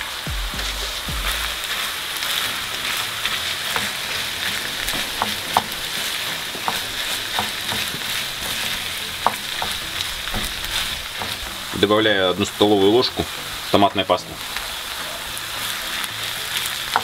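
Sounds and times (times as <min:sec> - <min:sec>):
meat and onion sizzling in a pan: 0:00.0 - 0:17.0
wooden spoon scraping a pan: 0:01.7 - 0:12.9.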